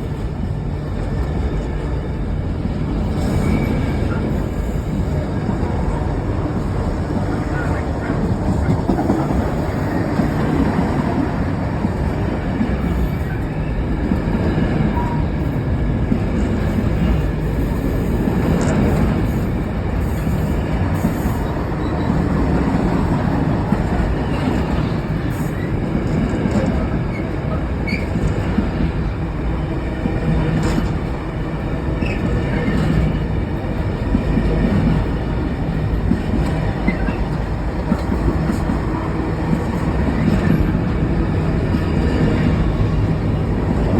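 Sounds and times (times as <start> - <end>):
freight train wheels rumbling: 0.0 - 43.9
train clicks: 3.0 - 15.2, 16.0 - 43.9
wheel squeal: 3.2 - 4.9, 27.1 - 28.3.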